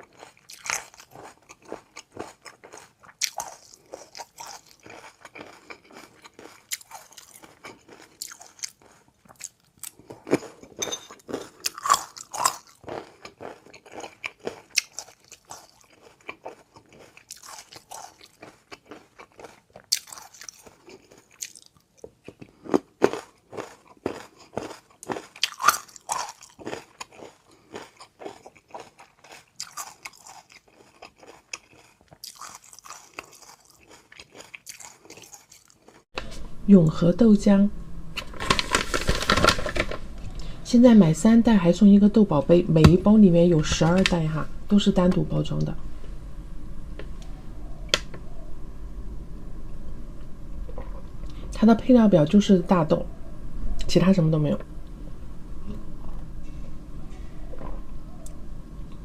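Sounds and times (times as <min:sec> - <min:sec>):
person chewing crunchy food: 0:00.0 - 0:36.4.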